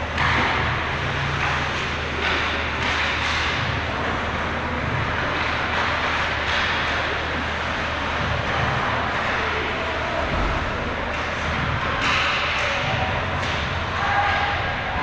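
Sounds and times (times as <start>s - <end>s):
crowd noise: 0.0s - 15.0s
sharp knocks of hockey sticks: 2.2s - 3.6s, 11.9s - 13.7s.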